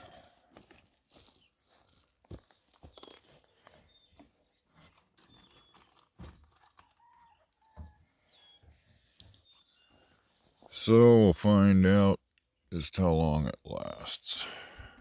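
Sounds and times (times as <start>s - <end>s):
bird chirps and clucks: 2.7s - 10.5s.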